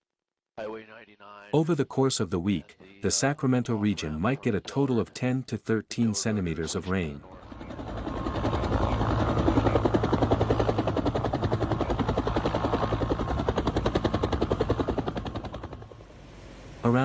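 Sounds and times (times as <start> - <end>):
helicopter rotor beating: 6.6 - 17.0.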